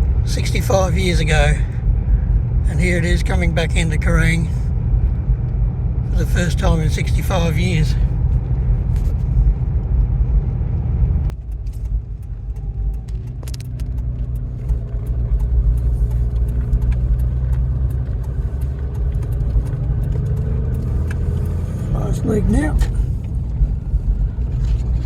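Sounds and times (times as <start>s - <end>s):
vehicle engine and road rumble: 0.0s - 25.0s
light rattling clicks: 11.3s - 21.7s.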